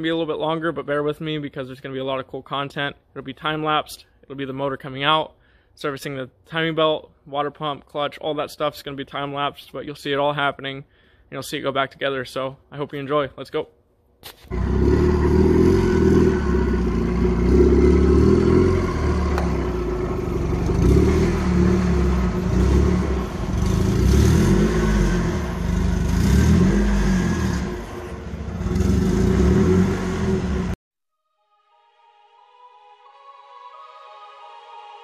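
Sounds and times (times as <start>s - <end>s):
car engine revving: 14.5s - 30.8s.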